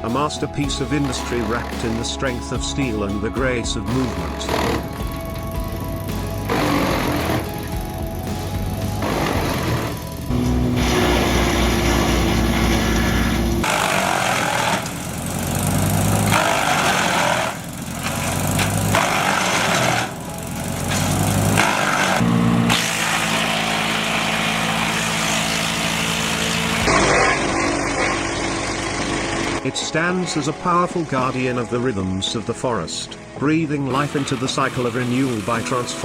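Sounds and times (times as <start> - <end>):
wood chipper engine hum: 3.2 - 29.7
wood being chipped: 4.0 - 29.6.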